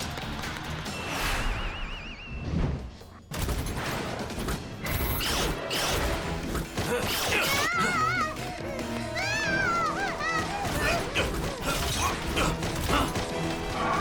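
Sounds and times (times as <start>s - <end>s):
blasts and impacts: 0.0s - 7.5s
background music: 0.0s - 14.0s.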